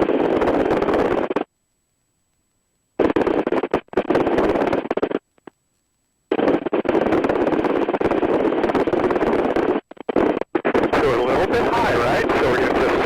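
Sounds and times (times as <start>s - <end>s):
wind noise on microphone: 0.0s - 1.4s, 6.3s - 13.0s.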